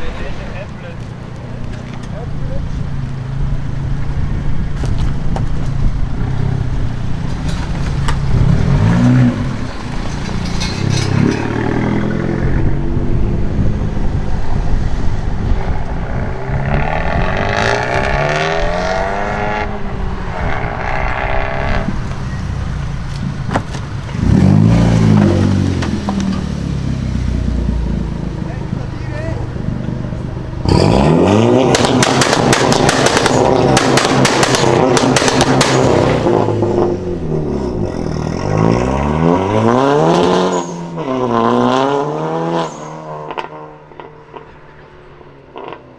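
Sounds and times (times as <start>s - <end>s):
car engines revving past: 0.0s - 45.9s
sharp cracks: 30.7s - 36.7s.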